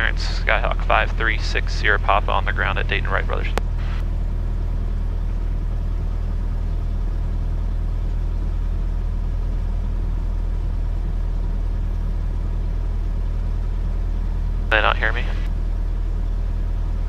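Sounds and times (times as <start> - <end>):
airplane engine idling: 0.0 - 17.0.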